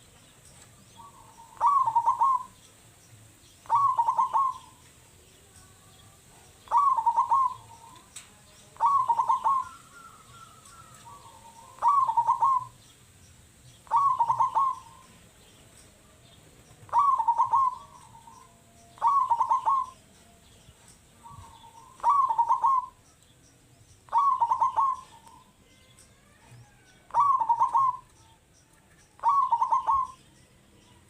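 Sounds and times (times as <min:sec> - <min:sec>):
dove cooing: 0:00.9 - 0:02.6, 0:03.6 - 0:04.9, 0:06.5 - 0:08.2, 0:08.8 - 0:12.8, 0:13.8 - 0:15.4, 0:16.8 - 0:20.2, 0:21.2 - 0:23.0, 0:24.1 - 0:25.6, 0:26.6 - 0:28.1, 0:29.2 - 0:30.2.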